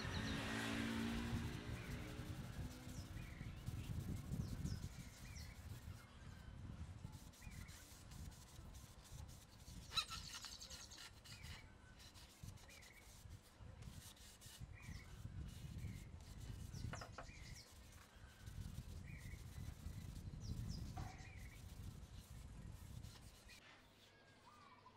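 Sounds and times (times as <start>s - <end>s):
small bird chirping: 1.4s - 6.0s, 9.6s - 11.6s.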